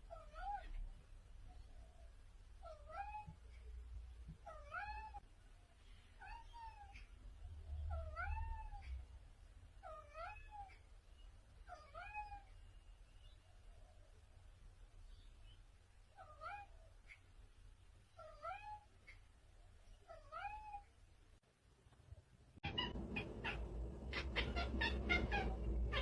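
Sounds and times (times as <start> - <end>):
cat meowing: 0.1 - 0.8, 2.6 - 3.4, 4.4 - 5.2, 7.9 - 8.9, 9.8 - 10.8, 11.7 - 12.5, 16.2 - 16.7, 18.2 - 18.9, 20.1 - 20.9, 22.6 - 26.0.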